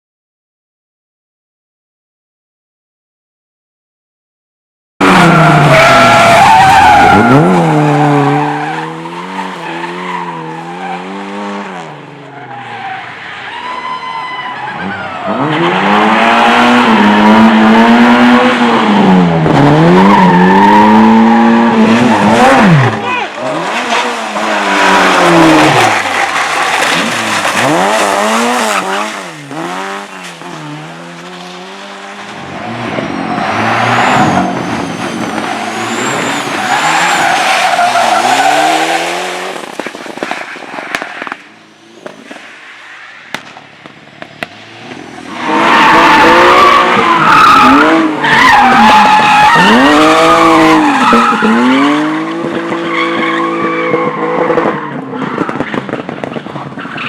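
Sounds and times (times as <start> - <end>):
race car engines revving: 5.0 - 57.0
tyres squealing: 33.2 - 39.8.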